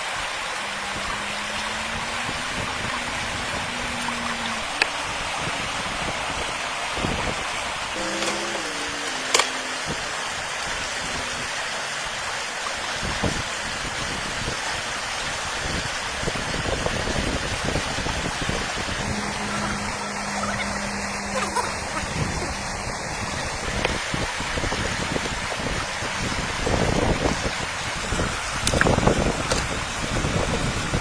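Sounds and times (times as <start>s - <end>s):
flowing water rushing: 0.0s - 31.0s
faint low hum: 18.8s - 26.8s.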